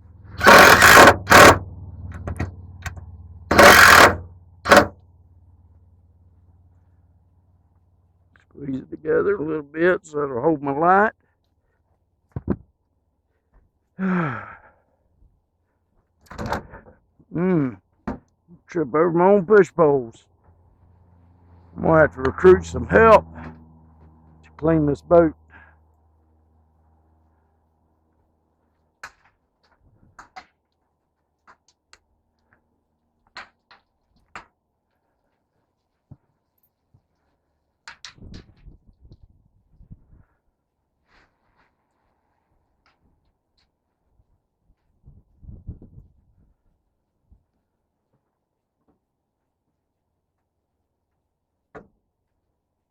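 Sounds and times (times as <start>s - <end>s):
clicks and knocks of tools: 2.2s - 4.9s
man sighing: 14.0s - 14.9s.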